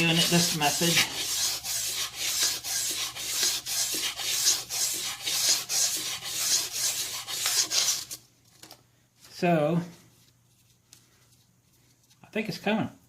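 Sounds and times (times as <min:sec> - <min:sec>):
sandpaper rubbing on metal: 0:00.0 - 0:08.2.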